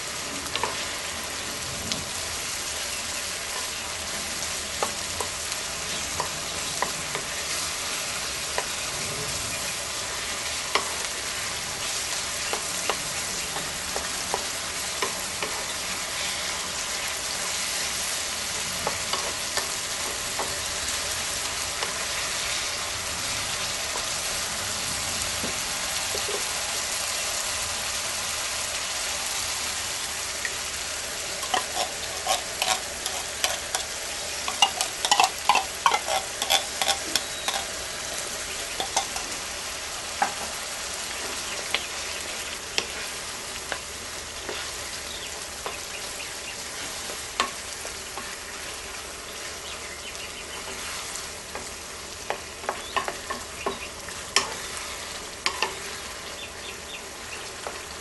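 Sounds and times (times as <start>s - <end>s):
meat sizzling in a frying pan: 0.0s - 58.0s
utensil clacking against pan: 31.4s - 37.7s, 38.8s - 39.3s.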